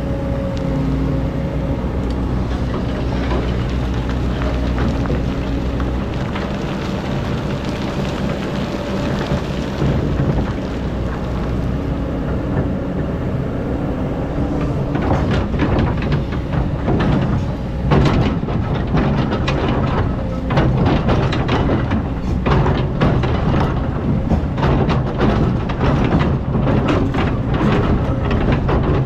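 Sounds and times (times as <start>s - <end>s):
diesel engine running: 0.0s - 29.0s
bucket knocking and clattering: 2.4s - 11.6s, 15.0s - 29.0s.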